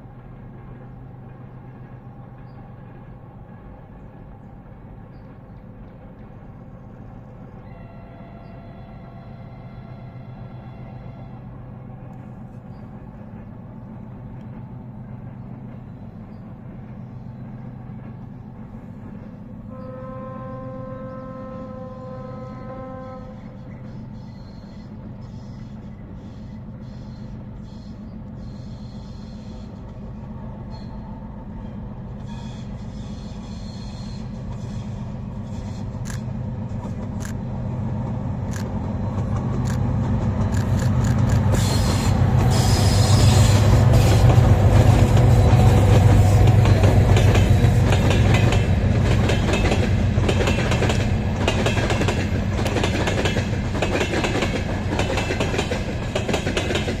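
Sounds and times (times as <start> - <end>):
diesel locomotive engine drone: 0.0 - 57.0
wheels clacking over rail joints: 38.4 - 57.0.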